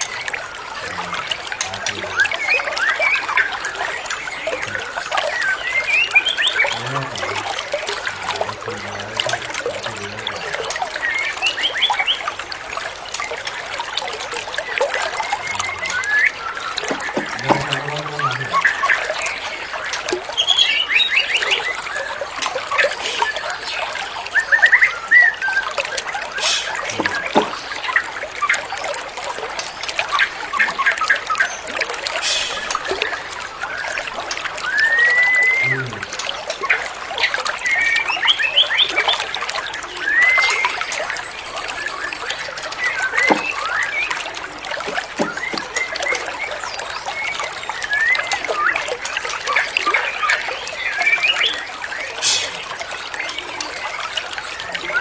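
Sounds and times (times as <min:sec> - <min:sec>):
trickle of running water: 0:00.0 - 0:55.0
songbird whistling: 0:34.6 - 0:35.7, 0:40.0 - 0:40.8.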